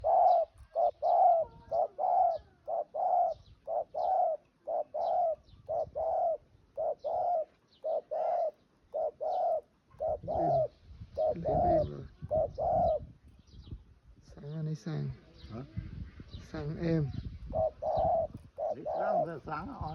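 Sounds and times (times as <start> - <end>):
dove cooing: 0.0 - 13.1, 17.1 - 19.9.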